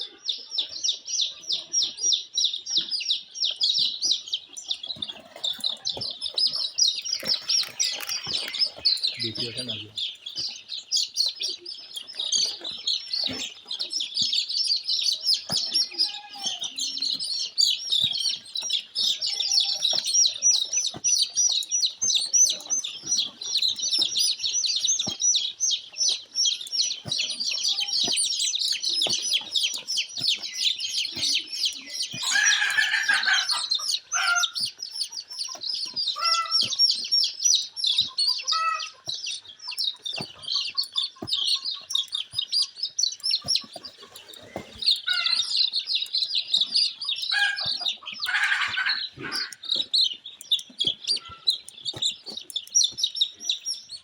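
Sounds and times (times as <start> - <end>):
chicks peeping: 0.0 - 54.0
short low chicken calls: 32.1 - 34.6, 47.3 - 49.6
loud chicken call: 32.2 - 34.7, 36.2 - 36.8, 38.4 - 39.0, 47.3 - 49.6.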